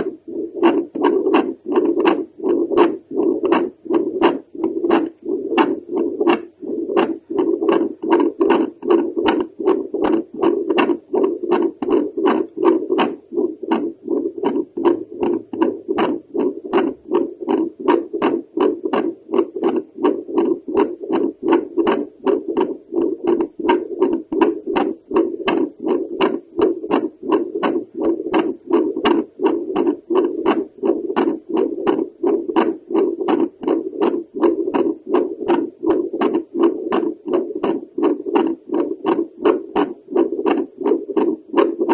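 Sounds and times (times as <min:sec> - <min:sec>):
whooshing heartbeat pulses: 0:00.0 - 0:41.9.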